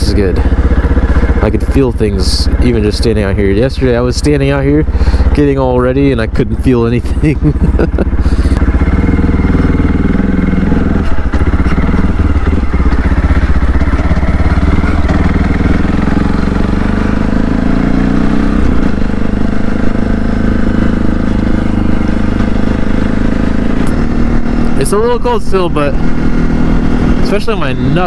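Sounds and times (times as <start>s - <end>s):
motorcycle engine pulling away: 7.1s - 28.0s.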